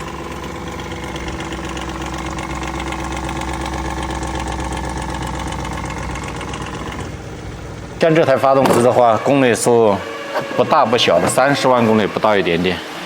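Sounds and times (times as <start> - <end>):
car engine idling with clattering tick: 0.0 - 8.8.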